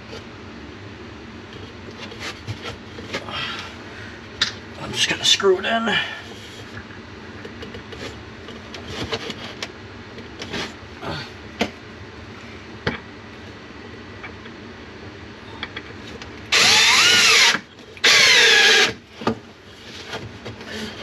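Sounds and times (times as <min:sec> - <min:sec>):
power drill driving a screw: 0:16.5 - 0:19.0.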